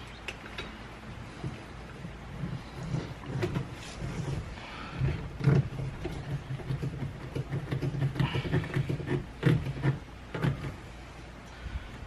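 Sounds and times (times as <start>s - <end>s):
low steady hum: 0.0s - 12.0s
short rasp: 2.5s - 10.8s.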